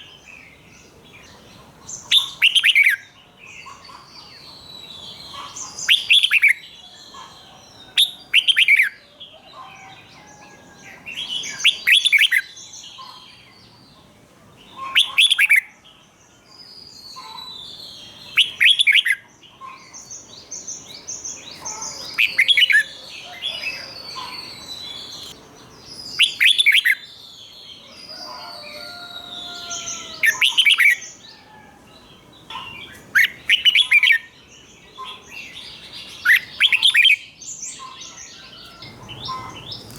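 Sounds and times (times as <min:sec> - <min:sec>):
soft bird chirps and twitters: 0:14.7 - 0:39.9.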